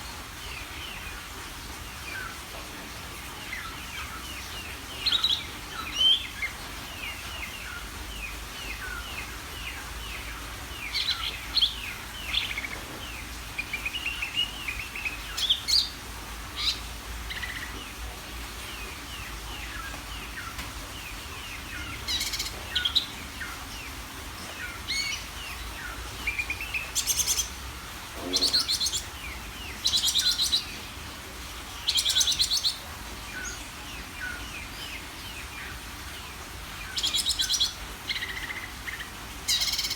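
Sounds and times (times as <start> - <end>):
fast rattling bird trills: 21.2 - 30.8.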